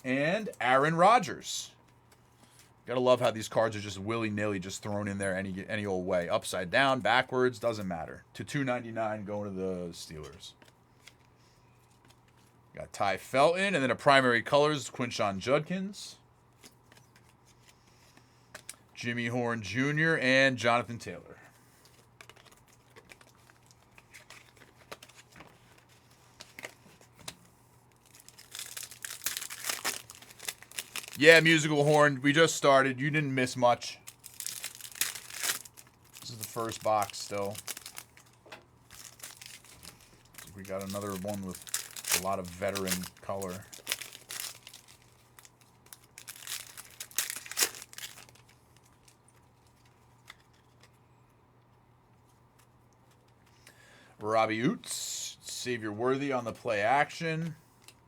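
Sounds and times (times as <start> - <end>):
wrapper crinkling and tearing: 21.8 - 27.1, 27.9 - 32.2, 34.0 - 50.9.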